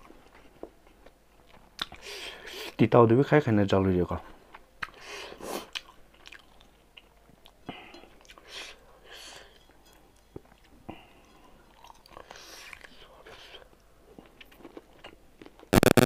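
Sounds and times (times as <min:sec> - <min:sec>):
chewing and lip-smacking: 0:00.2 - 0:02.1, 0:04.5 - 0:05.0, 0:05.6 - 0:08.5, 0:10.4 - 0:15.7.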